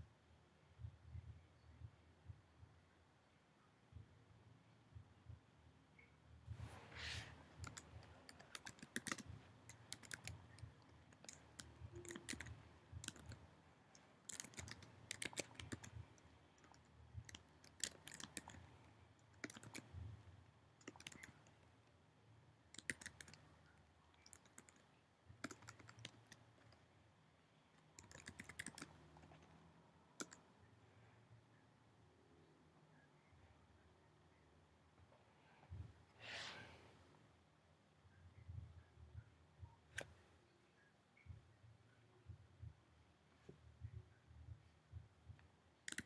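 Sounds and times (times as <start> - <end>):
computer keyboard typing: 7.5 - 20.0, 20.8 - 21.6, 22.7 - 23.5, 24.2 - 26.8, 27.8 - 29.5, 30.2 - 30.5.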